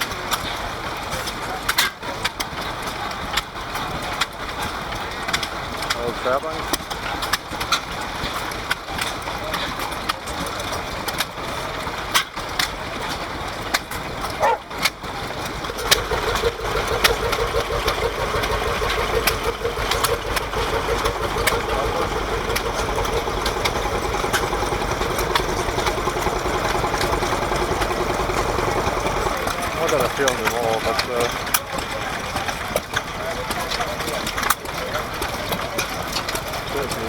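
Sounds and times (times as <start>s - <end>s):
stationary engines running: 0.0s - 37.0s
sharp clicks and knocks: 12.1s - 37.0s.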